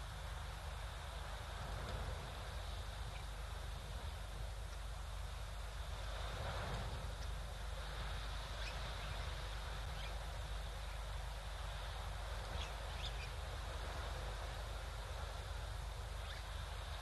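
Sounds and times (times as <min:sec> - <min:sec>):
faint bird chirps: 0:08.4 - 0:11.2, 0:12.4 - 0:13.5, 0:16.1 - 0:17.0.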